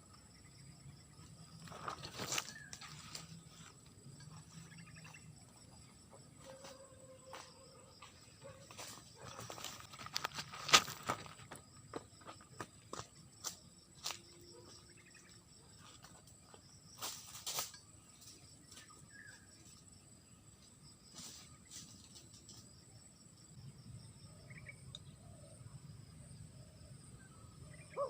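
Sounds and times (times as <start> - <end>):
high-pitched insect drone: 0.0 - 9.9.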